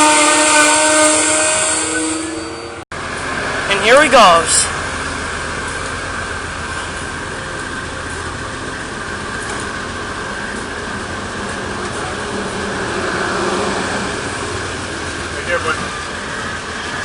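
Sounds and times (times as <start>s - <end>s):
train coaches rolling rumble: 0.0s - 17.0s.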